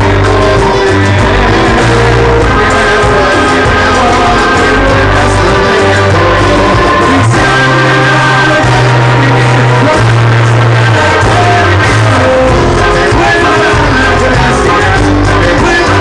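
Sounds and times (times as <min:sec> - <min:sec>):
band music with strong bass: 0:00.0 - 0:16.0.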